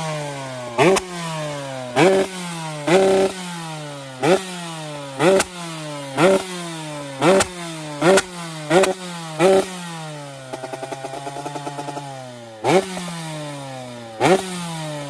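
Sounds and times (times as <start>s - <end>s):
two-stroke engine revving: 0.0s - 15.0s.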